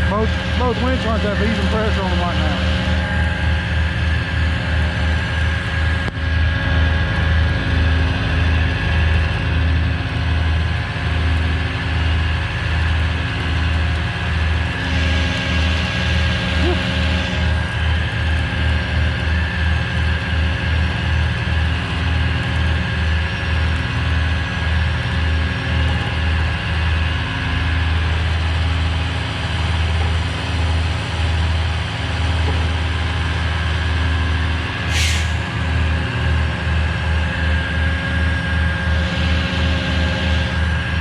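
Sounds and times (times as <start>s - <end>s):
diesel engine rumbling under load: 0.0s - 41.0s
burst of hiss: 34.9s - 35.4s.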